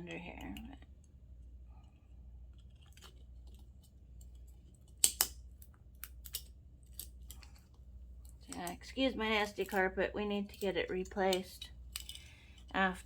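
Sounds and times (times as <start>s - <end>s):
steady low hum: 0.0s - 13.0s
hand tool clicks and snaps: 4.2s - 7.5s, 11.3s - 12.7s.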